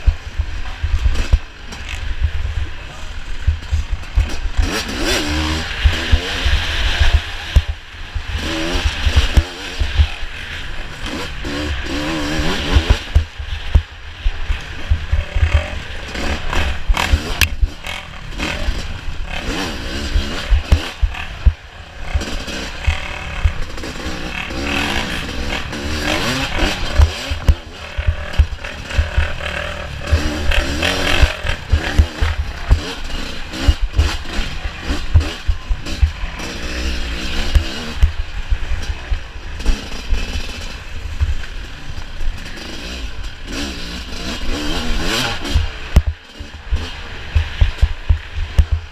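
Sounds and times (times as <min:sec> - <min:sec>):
motorcycle engines revving: 0:00.0 - 0:48.9
low thumps: 0:12.7 - 0:36.2.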